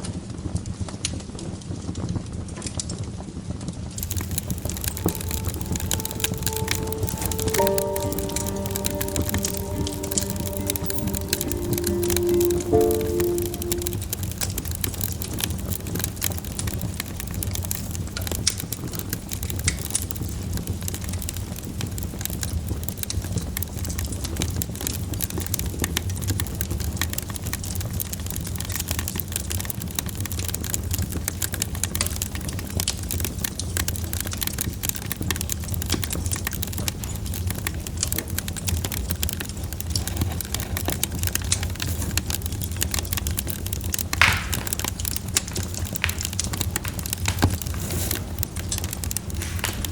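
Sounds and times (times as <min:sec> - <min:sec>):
wood fire crackling: 0:04.0 - 0:14.2, 0:28.0 - 0:49.9.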